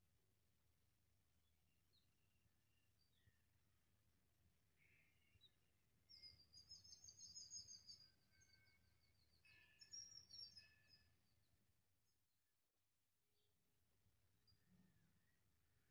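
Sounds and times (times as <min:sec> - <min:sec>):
faint birds twittering: 0:04.8 - 0:11.4.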